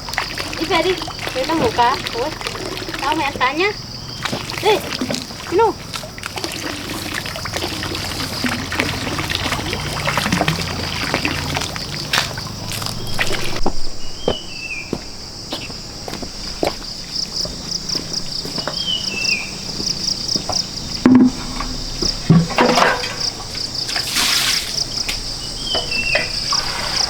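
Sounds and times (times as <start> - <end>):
water splashing and trickling: 0.0 - 14.2, 16.4 - 27.0
bird chirp: 12.8 - 15.8, 17.9 - 20.2, 24.8 - 27.0
knocks: 20.5 - 23.4.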